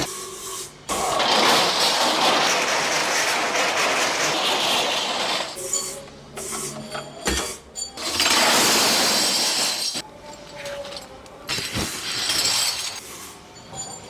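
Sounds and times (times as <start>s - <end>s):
hard pieces rattling and clinking: 1.0s - 5.6s, 7.9s - 13.0s.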